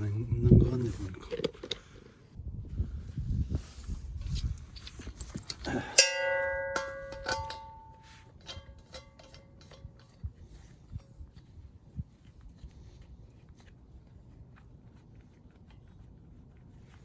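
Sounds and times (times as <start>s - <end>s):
light metallic clinks and taps: 4.9s - 11.1s
metal object ringing like a bell: 5.9s - 9.8s.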